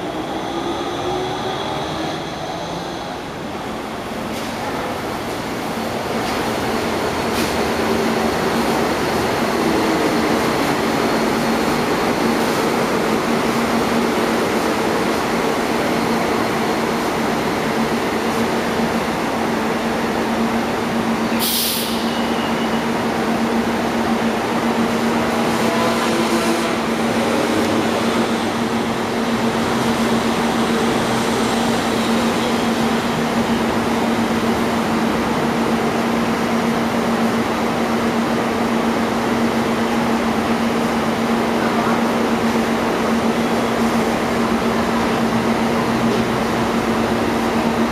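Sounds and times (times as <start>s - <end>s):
train rumbling: 0.0s - 47.9s
brief sharp hiss: 21.4s - 22.3s.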